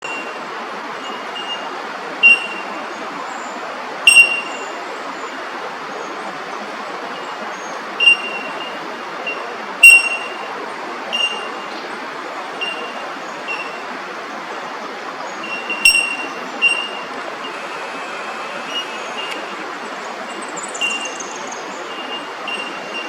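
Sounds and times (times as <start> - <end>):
distant traffic hum: 0.0 - 23.0
small bird high call notes: 15.4 - 19.6.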